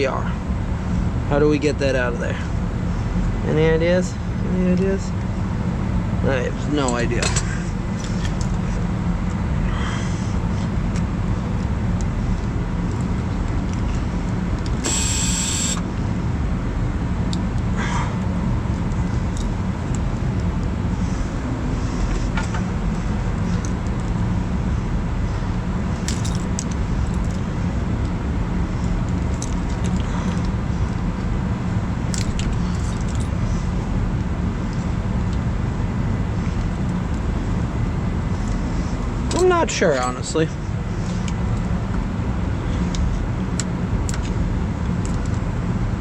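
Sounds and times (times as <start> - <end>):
steady low rumble: 0.0 - 46.0
keys jingling: 26.0 - 27.4, 32.1 - 33.3.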